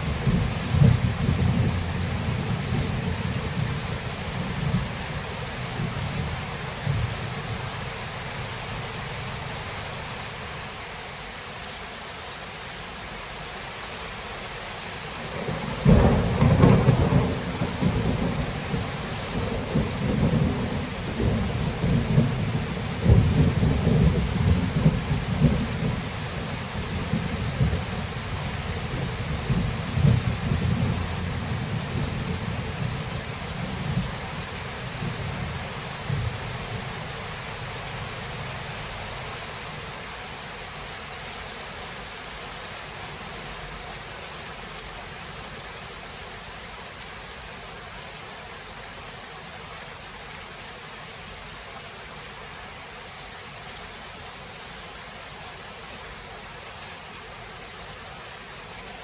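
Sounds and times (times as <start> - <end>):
thunder rumbling: 0.0 - 7.3, 15.4 - 38.7
steady rain falling: 0.0 - 59.0.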